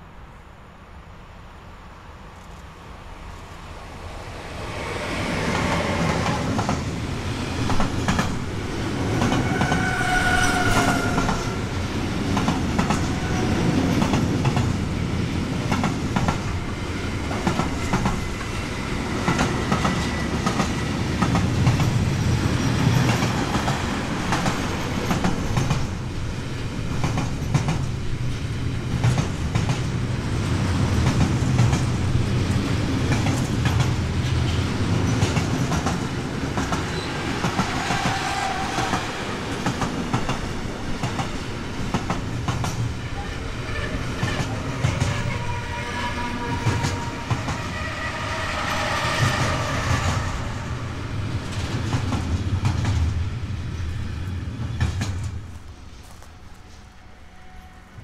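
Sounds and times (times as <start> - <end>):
train rumbling past: 0.0 - 58.0
high-pitched wheel squeal: 9.4 - 11.6, 43.2 - 50.8
wheels clacking over rail joints: 33.0 - 50.5.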